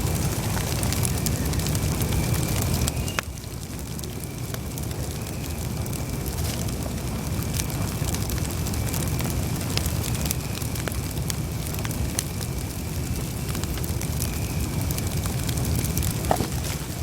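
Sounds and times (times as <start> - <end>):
campfire flames rumbling: 0.0 - 17.0
fire crackling and popping: 0.0 - 17.0.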